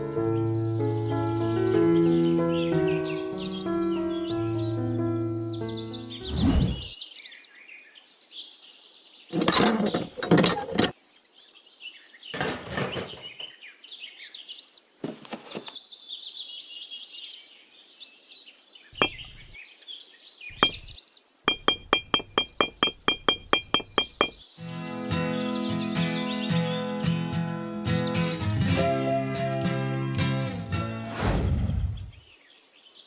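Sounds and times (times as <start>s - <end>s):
birds chirping: 9.2s - 26.9s
loud knocks: 19.0s - 19.6s, 20.5s - 24.4s.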